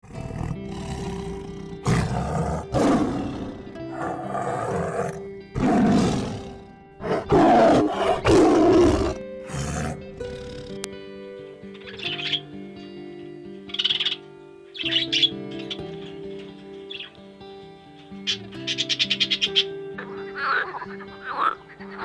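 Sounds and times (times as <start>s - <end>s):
tiger roaring: 0.0s - 10.8s
background music: 0.0s - 22.0s.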